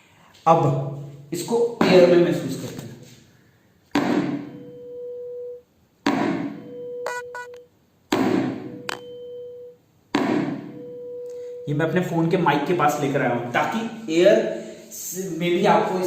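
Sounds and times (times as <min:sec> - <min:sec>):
tuning fork struck and ringing: 0:06.5 - 0:07.6, 0:08.7 - 0:09.8, 0:10.6 - 0:11.6.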